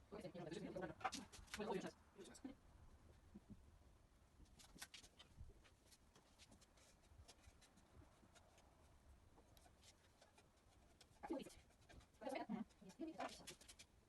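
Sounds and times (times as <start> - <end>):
light clicks and scratching: 4.4 - 14.0.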